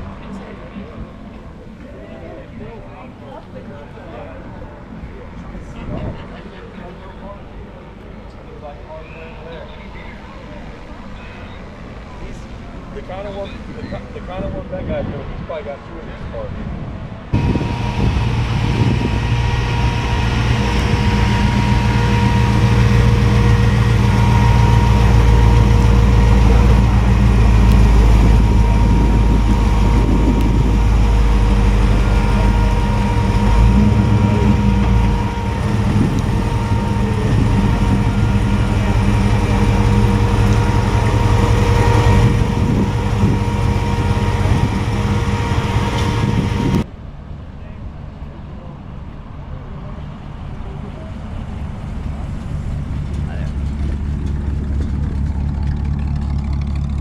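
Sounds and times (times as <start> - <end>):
car engine idling: 17.4 - 46.8, 49.9 - 57.0.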